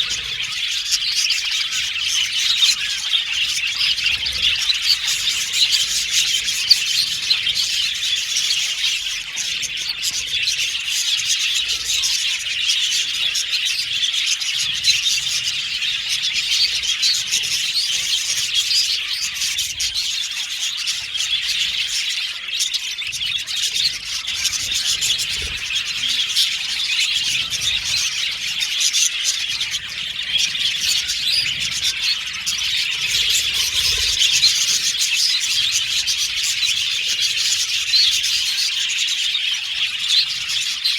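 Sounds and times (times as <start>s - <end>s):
budgerigars chattering and chirping: 0.0s - 40.9s.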